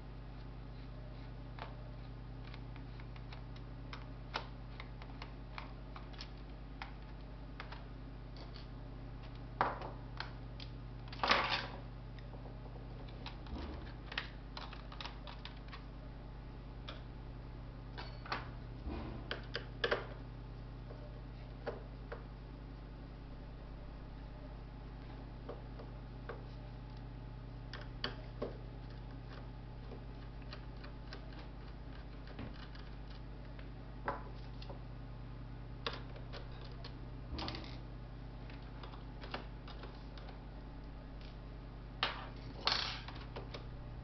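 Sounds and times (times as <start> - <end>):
steady low hum: 0.0 - 44.0
parts clattering: 42.0 - 43.6.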